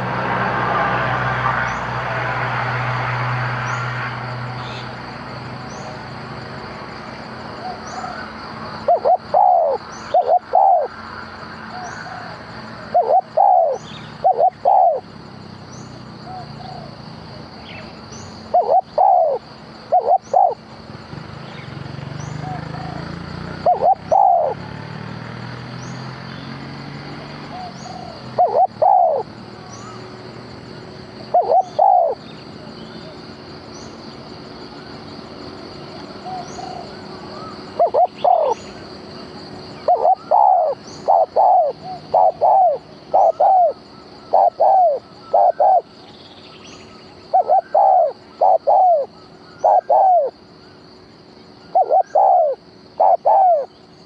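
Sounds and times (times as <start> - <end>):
dove cooing: 7.6 - 10.9, 11.8 - 15.1, 18.5 - 20.6, 22.4 - 24.6, 27.5 - 30.0, 31.3 - 32.2, 36.2 - 38.7, 39.8 - 45.9, 47.3 - 50.4, 51.7 - 53.7.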